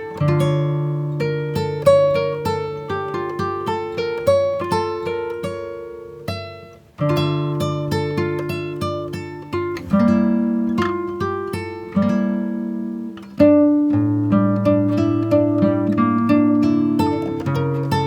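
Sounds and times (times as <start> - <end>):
acoustic guitar picking melody: 0.0 - 18.0.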